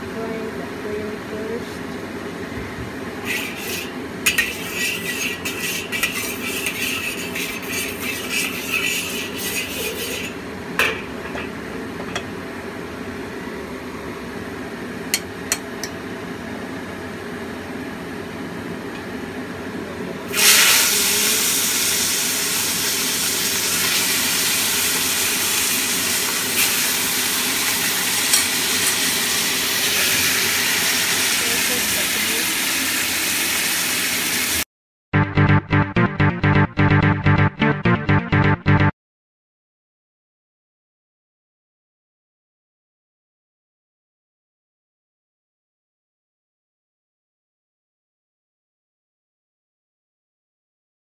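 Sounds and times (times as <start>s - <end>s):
loud sizzle of frying: 3.2s - 15.6s, 20.2s - 34.7s
hot oil crackling in a wok: 3.3s - 10.4s, 20.3s - 34.6s
metal spatula stirring and clinking: 3.3s - 10.4s.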